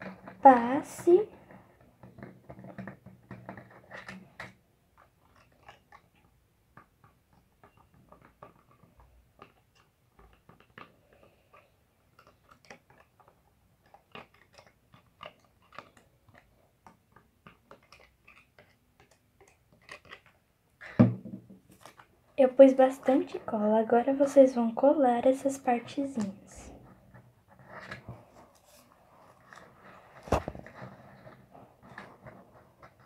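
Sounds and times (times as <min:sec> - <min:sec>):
small clicks and taps of plastic: 0:01.0 - 0:22.1.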